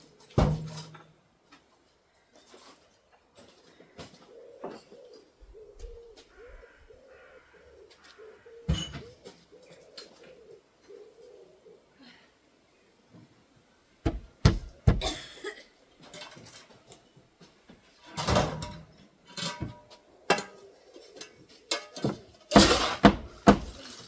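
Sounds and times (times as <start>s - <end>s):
knocks and thuds: 0.4s - 0.9s, 14.0s - 15.2s, 22.6s - 23.8s
clattering scrapes: 21.2s - 24.0s.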